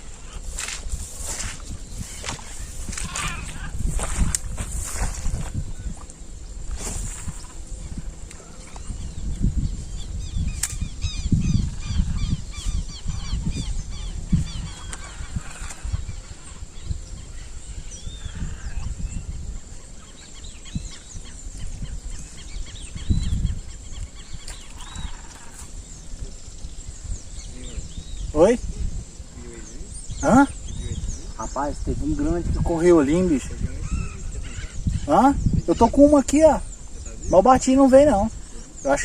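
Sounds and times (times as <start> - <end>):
low rumbles and thumps: 0.0 - 16.2
birds chirping: 0.0 - 39.0.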